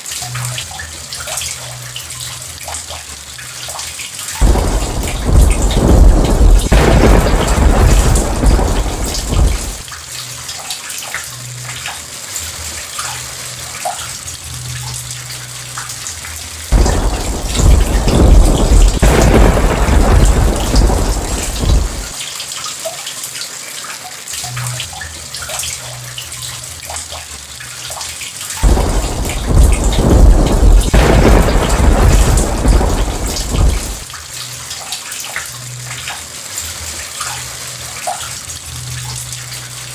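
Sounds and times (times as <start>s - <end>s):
heavy rain: 2.6s - 39.9s
thunder rumbling: 4.4s - 9.9s, 16.7s - 22.2s, 28.6s - 34.1s.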